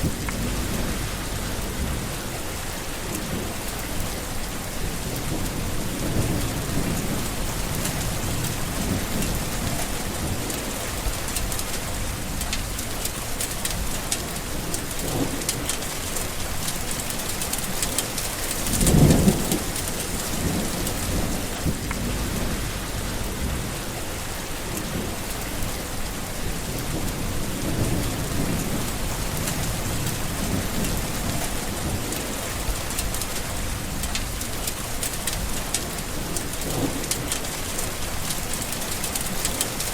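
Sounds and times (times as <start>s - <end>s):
sharp thunderclap: 0.0s - 2.3s, 18.6s - 23.8s
low rolling thunder: 0.0s - 13.1s, 13.7s - 39.8s
heavy rain: 0.0s - 39.9s.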